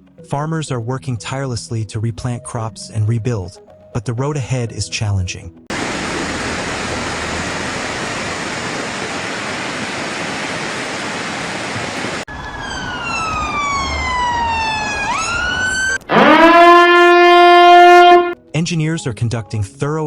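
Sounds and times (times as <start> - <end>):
steady rushing noise: 5.7 - 12.3
loud low steady siren tone: 12.3 - 18.4
siren sweeping in pitch: 12.3 - 18.4.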